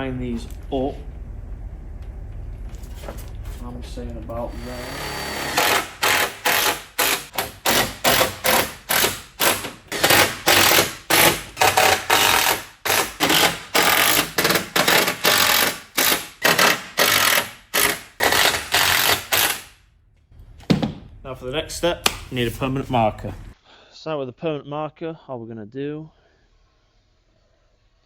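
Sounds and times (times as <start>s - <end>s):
sharp mechanical tool bursts: 4.5s - 19.8s.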